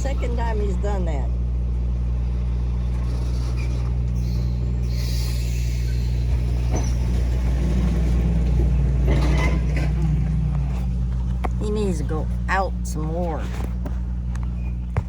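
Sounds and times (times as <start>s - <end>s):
engine idling: 0.0s - 15.0s
truck engine working: 0.0s - 15.0s.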